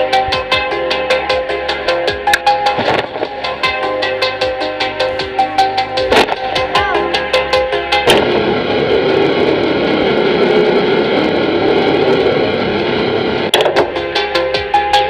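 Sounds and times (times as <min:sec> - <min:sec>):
airplane engines running: 0:00.0 - 0:15.0
music: 0:00.0 - 0:15.0.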